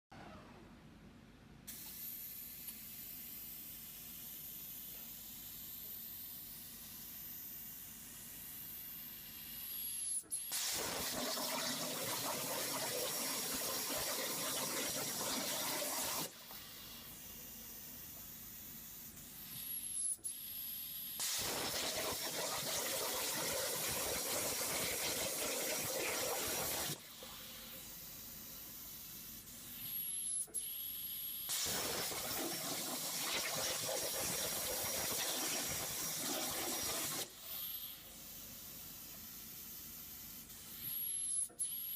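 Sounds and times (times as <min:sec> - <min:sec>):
plasma cutter hissing rush: 0:10.5 - 0:17.2, 0:21.2 - 0:29.9, 0:31.5 - 0:40.9.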